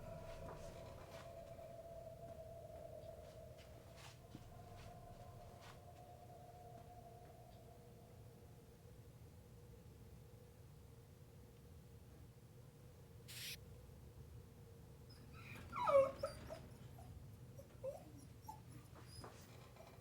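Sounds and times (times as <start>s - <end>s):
faint steady hum: 0.0s - 20.0s
brief hiss: 13.3s - 13.6s
dog whimpering: 15.1s - 19.8s.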